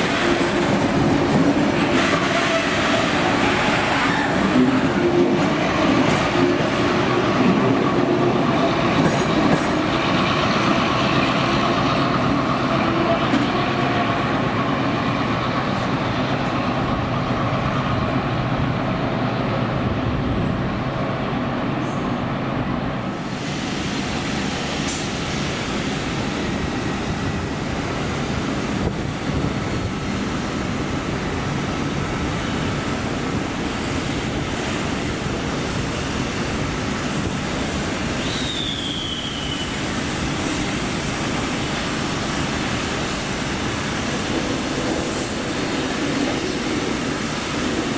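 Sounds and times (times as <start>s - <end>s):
train rumble and rail noise: 0.0s - 47.9s
high squeal falling in pitch: 38.2s - 39.9s.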